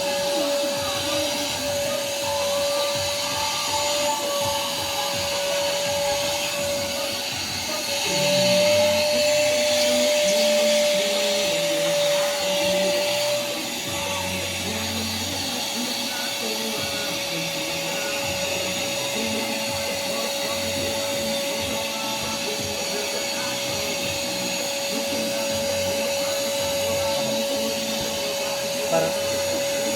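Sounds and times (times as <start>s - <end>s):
vacuum cleaner whining: 0.0s - 29.9s.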